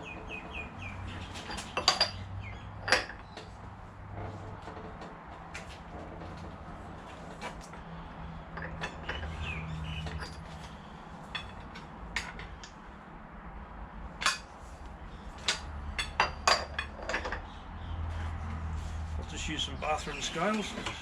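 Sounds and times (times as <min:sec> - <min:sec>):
metal tools clinking: 0:01.2 - 0:03.2, 0:08.5 - 0:12.5.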